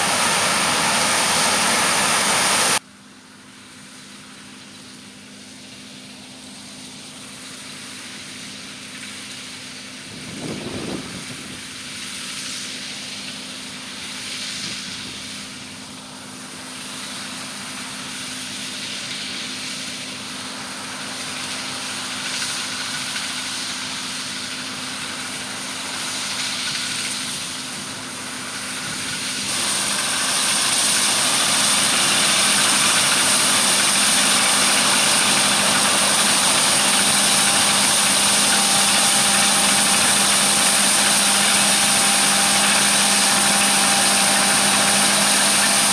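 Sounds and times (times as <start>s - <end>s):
farm machinery engine hum: 0.0s - 2.8s, 3.4s - 45.9s
strong hiss: 0.0s - 2.8s, 29.2s - 45.9s.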